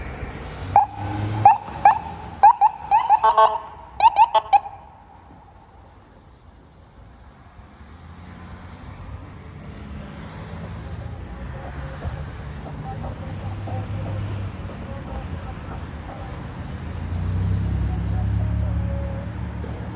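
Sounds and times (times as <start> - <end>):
heavy vehicle engine rumbling: 0.0 - 19.9.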